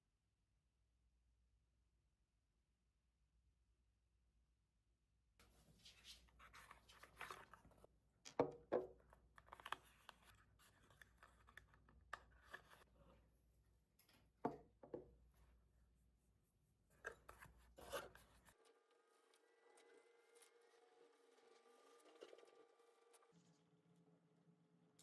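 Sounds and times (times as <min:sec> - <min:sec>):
handling rustling and scraping: 0:05.4 - 0:14.4, 0:16.3 - 0:18.6.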